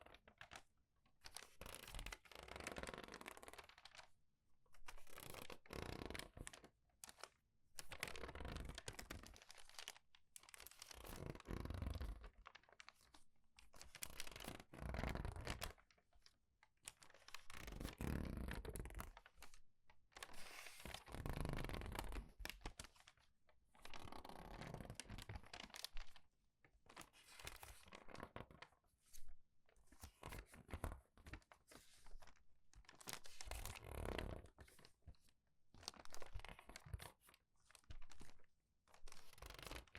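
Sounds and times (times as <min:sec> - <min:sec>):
crinkly paper pages rustling: 0:00.1 - 0:02.3, 0:03.1 - 0:04.2, 0:06.4 - 0:11.2, 0:12.1 - 0:14.7, 0:18.9 - 0:39.9.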